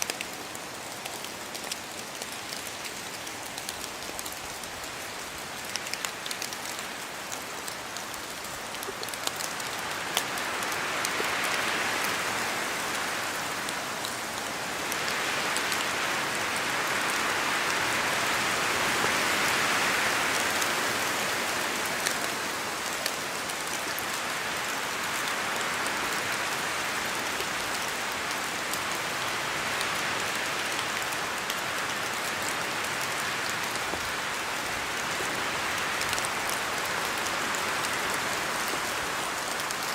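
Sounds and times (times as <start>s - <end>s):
sharp water drips: 0.0s - 11.6s
rain falling on trees: 0.0s - 39.9s
wind gusting through trees: 0.0s - 39.9s.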